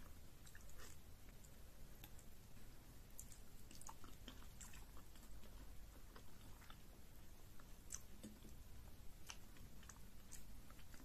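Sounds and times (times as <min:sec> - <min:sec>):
person chewing wetly: 0:00.0 - 0:02.4, 0:03.1 - 0:11.0
mouth smacks and clicks: 0:03.1 - 0:06.8, 0:07.6 - 0:08.6.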